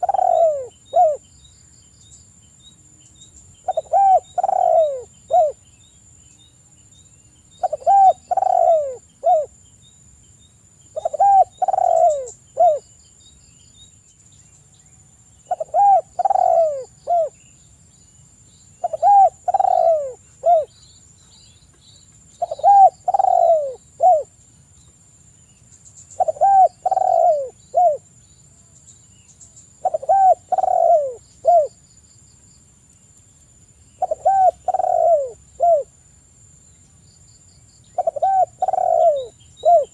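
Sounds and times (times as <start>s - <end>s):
dove cooing: 0.0s - 1.2s, 3.6s - 5.6s, 7.6s - 9.5s, 11.0s - 12.8s, 15.5s - 17.4s, 18.8s - 20.7s, 22.4s - 24.3s, 26.2s - 28.0s, 29.8s - 31.8s, 34.0s - 35.9s, 38.0s - 39.9s.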